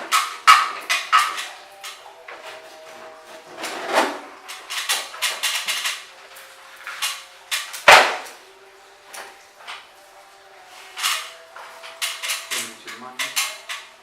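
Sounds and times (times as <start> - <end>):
tools and parts clicking: 0.0 - 2.1, 4.4 - 8.3, 10.9 - 14.0
sharp loud knock: 7.9 - 8.4.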